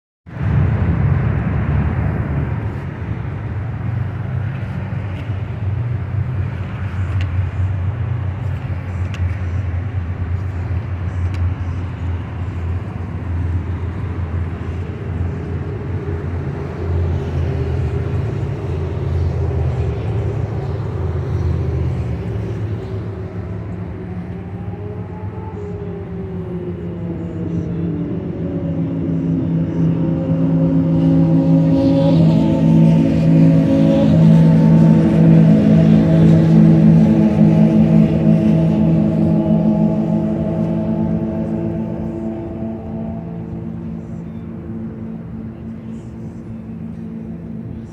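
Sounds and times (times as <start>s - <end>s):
motorcycle engines running: 1.7s - 47.9s.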